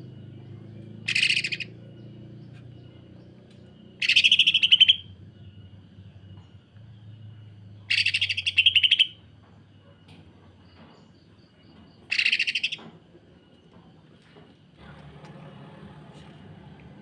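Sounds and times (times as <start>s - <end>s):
bird rattling calls: 1.0s - 1.8s, 4.0s - 5.1s, 7.9s - 9.2s, 12.1s - 12.8s.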